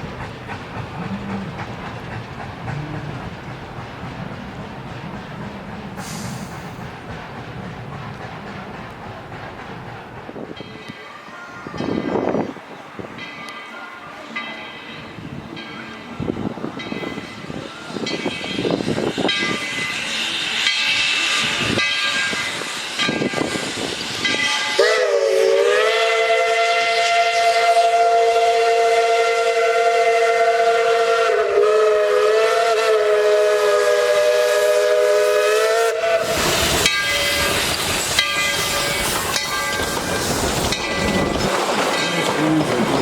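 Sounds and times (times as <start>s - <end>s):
steam hiss: 0.0s - 10.5s, 16.1s - 43.0s
train running on rails: 0.0s - 43.0s
steam whistle chord: 24.5s - 37.5s.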